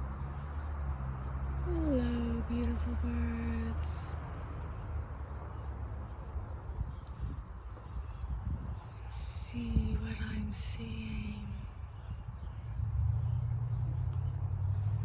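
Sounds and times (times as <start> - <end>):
songbird chirping: 0.0 - 15.0
woman humming low note: 1.6 - 4.1.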